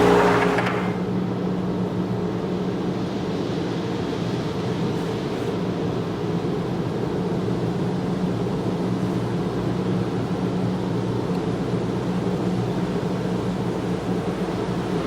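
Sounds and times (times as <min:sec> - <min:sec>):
car wash machinery rushing: 0:00.0 - 0:01.7.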